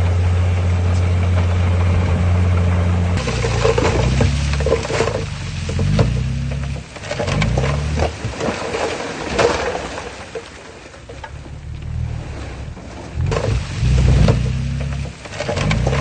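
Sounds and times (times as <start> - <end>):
diesel construction machine revving: 0.0 - 8.2, 11.3 - 16.0
stone clattering and scraping: 3.2 - 9.8.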